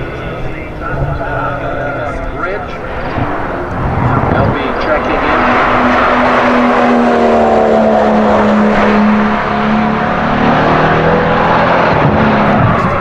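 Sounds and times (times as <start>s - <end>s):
lower engine note: 0.0s - 13.0s
race car engine passing by: 0.0s - 13.0s.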